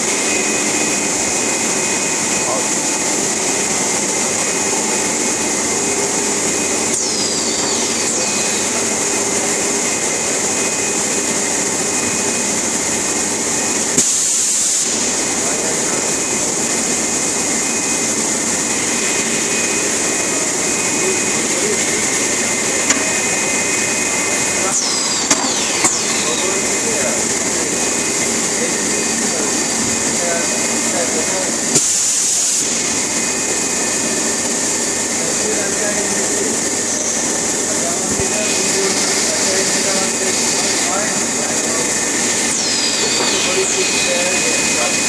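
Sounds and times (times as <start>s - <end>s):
extrusion machine whirring: 0.0s - 45.0s
whining tones: 17.6s - 31.6s, 38.0s - 45.0s.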